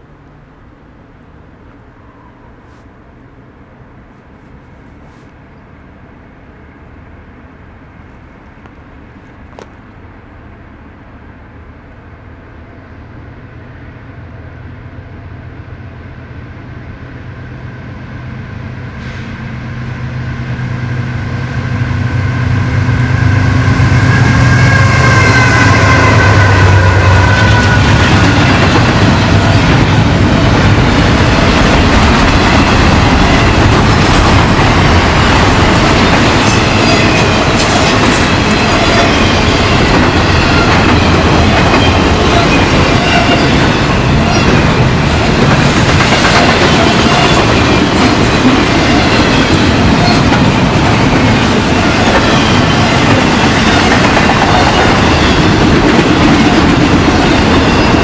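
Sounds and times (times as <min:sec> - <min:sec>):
railroad cars rolling: 0:00.0 - 0:58.0.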